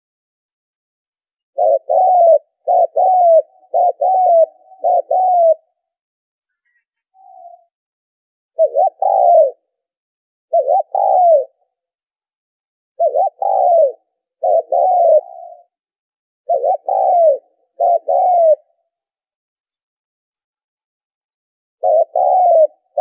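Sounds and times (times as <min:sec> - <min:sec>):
dove cooing: 0:01.6 - 0:05.9, 0:06.7 - 0:07.7, 0:08.5 - 0:09.8, 0:10.5 - 0:11.8, 0:13.0 - 0:15.8, 0:16.4 - 0:18.9, 0:21.8 - 0:23.0.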